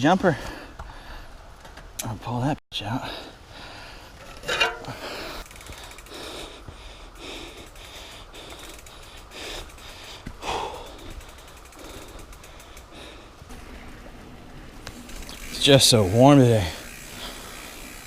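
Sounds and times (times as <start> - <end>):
person breathing hard: 0.4 - 1.4, 3.0 - 4.2, 4.8 - 13.5, 16.8 - 18.0
bike drivetrain noise: 3.5 - 18.0
freewheel ticking: 7.4 - 18.0.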